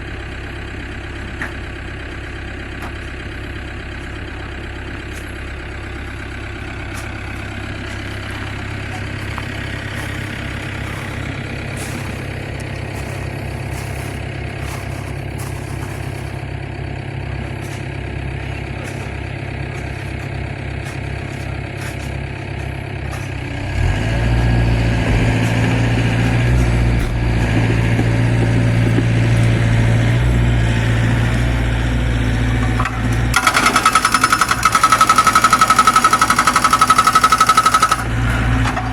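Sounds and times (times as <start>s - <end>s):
excavator diesel engine: 0.0s - 38.9s
hydraulic breaker hammering: 23.8s - 38.9s.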